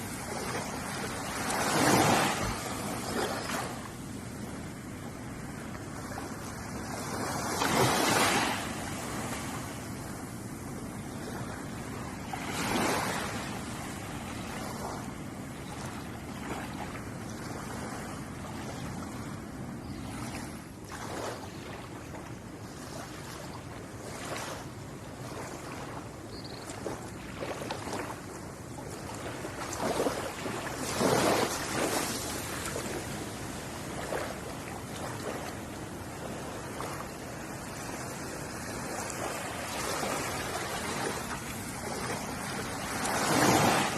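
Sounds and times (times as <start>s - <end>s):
ocean surf washing on beach: 0.0s - 19.4s, 20.2s - 43.9s
waves breaking: 0.0s - 43.9s.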